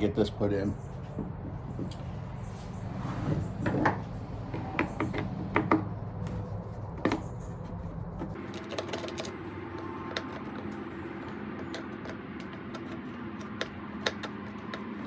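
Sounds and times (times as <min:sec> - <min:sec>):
small parts and tools clicking: 0:08.3 - 0:15.0.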